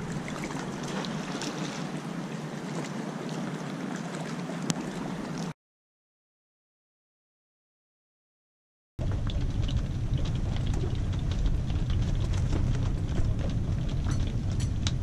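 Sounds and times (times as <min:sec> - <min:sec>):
raindrops tapping: 0:09.0 - 0:15.0
wind and rain on canvas: 0:09.0 - 0:15.0.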